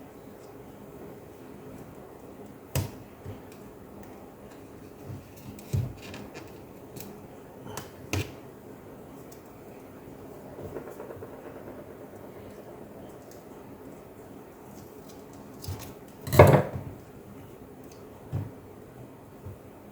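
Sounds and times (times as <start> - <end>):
low steady hum: 8.7 - 16.2.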